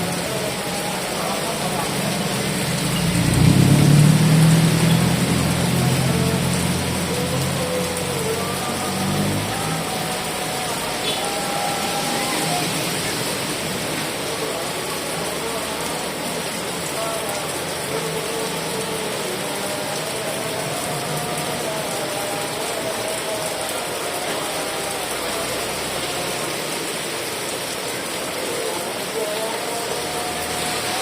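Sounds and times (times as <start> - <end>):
heavy rain falling: 0.0 - 31.0.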